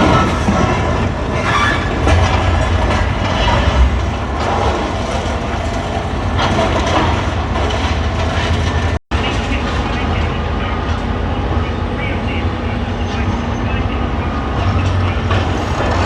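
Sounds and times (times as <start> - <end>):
debris clattering and grinding: 0.0 - 9.0
diesel machinery rumble: 0.0 - 16.0.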